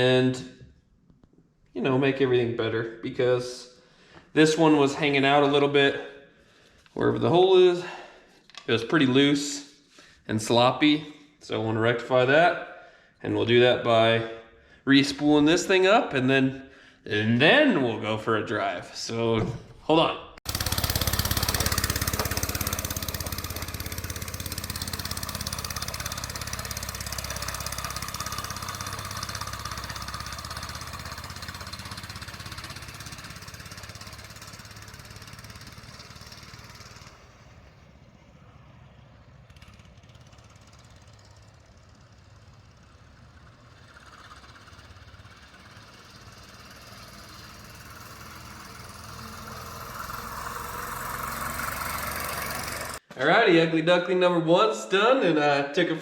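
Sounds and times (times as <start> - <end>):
minibike engine running: 20.5 - 53.0.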